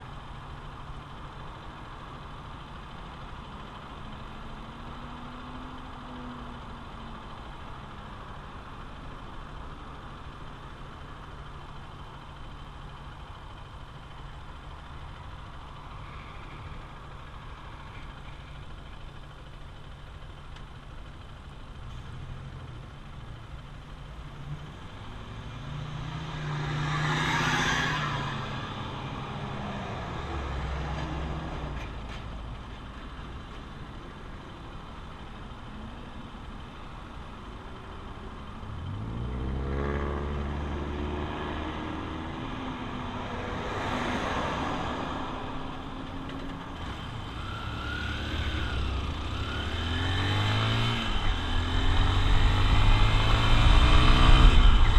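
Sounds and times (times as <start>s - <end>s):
motorcycle engine running: 0.0s - 26.4s, 44.8s - 54.9s
wind and road noise: 0.0s - 54.9s.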